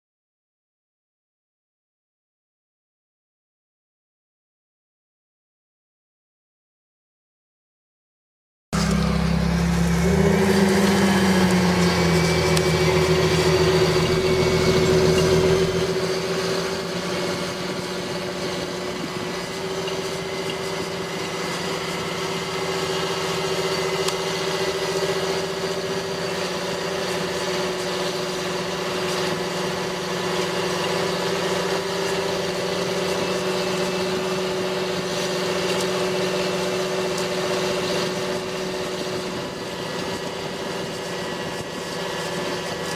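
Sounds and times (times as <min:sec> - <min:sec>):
tractor diesel engine droning: 0:08.8 - 0:42.9.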